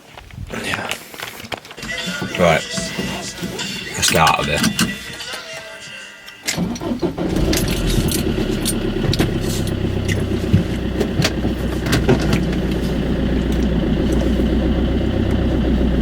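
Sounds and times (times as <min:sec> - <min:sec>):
car engine humming: 0:06.6 - 0:16.0.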